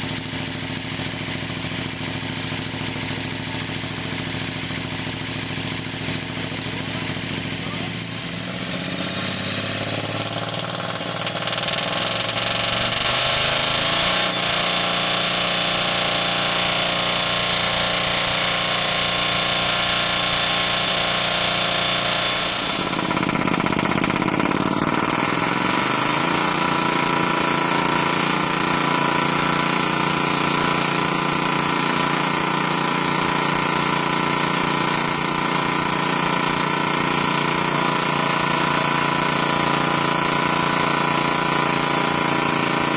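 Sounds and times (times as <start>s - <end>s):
engine-driven machinery running: 0.0s - 42.9s
steady machine hum: 13.5s - 42.9s.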